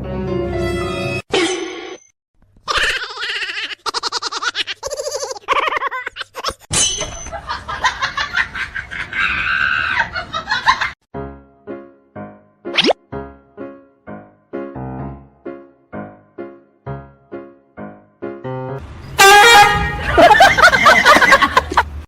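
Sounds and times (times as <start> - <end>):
high-pitched laughing and shrieking: 2.6 - 11.0.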